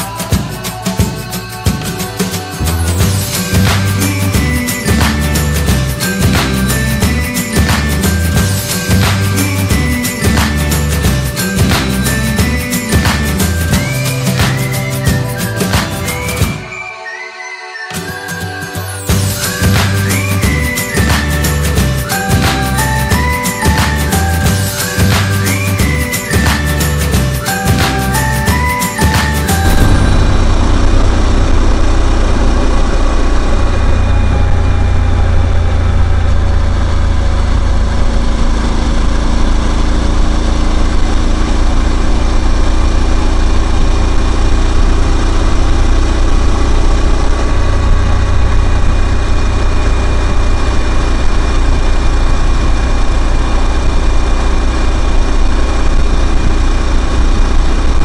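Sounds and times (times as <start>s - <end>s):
motorcycle engine running: 2.6s - 16.0s, 29.2s - 58.0s.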